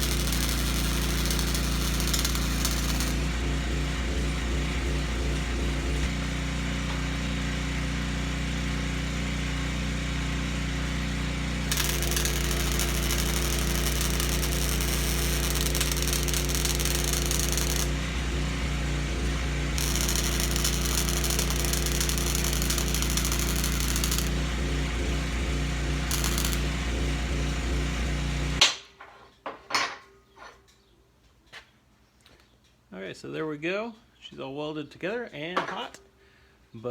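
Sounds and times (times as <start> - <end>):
welding arc crackling and hissing: 0.0 - 5.0, 11.7 - 18.4, 19.1 - 27.1
electrical hum: 0.0 - 6.1, 11.7 - 28.6.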